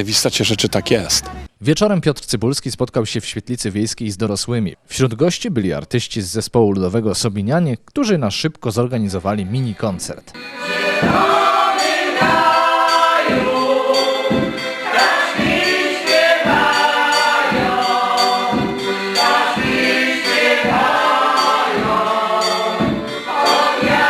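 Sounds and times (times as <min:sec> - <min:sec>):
steady low beat: 0:10.4 - 0:24.0
vocal ensemble singing: 0:10.4 - 0:24.0.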